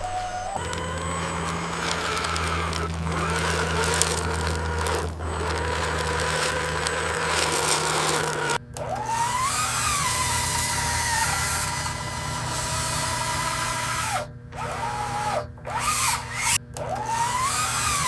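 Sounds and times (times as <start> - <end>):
scattered clicks: 0.0 - 9.0
small motor whining: 0.0 - 18.0.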